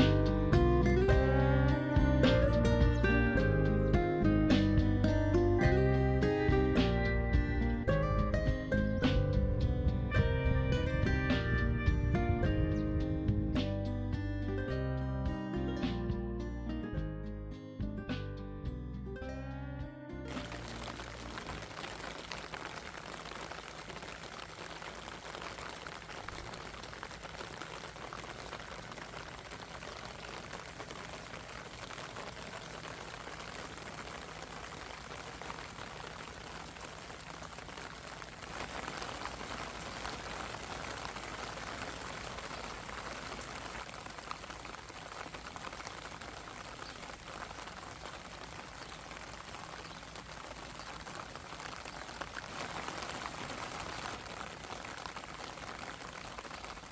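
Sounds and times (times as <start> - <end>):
rain falling: 0.0 - 15.1, 20.3 - 56.9.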